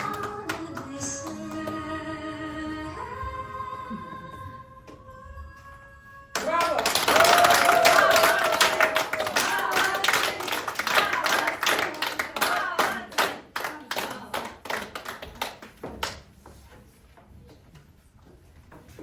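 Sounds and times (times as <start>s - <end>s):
audience clapping: 0.0s - 1.8s, 6.4s - 16.3s.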